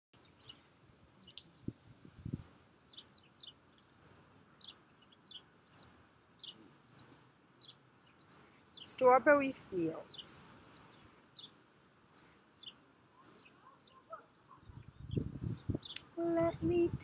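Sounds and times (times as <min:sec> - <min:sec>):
small birds chirping: 0:00.2 - 0:17.0
wind buffeting microphone: 0:01.4 - 0:02.6, 0:14.6 - 0:17.0
wind noise: 0:01.4 - 0:02.6, 0:14.6 - 0:17.0.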